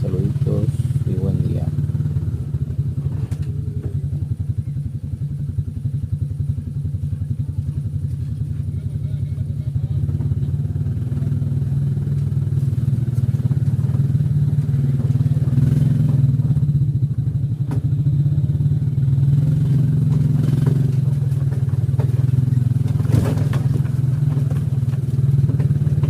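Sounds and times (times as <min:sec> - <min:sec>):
vehicle engine running: 0:00.0 - 0:26.0
knocks and rattles: 0:19.7 - 0:26.0.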